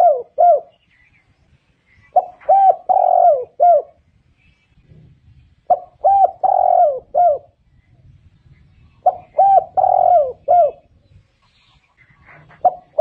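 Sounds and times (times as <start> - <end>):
dove cooing: 0.0 - 0.8, 2.0 - 4.0, 5.6 - 7.6, 8.9 - 10.9, 12.0 - 13.0.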